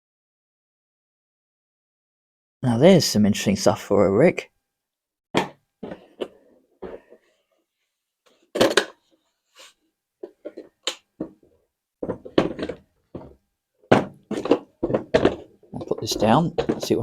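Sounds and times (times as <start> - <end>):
plastic knocks and clicks: 10.2 - 17.0
thud: 13.9 - 17.0.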